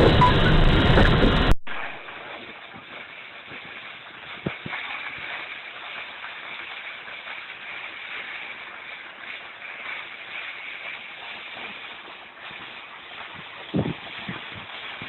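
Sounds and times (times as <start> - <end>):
car road and engine noise: 0.0 - 1.5
loud rushing noise: 0.0 - 2.2.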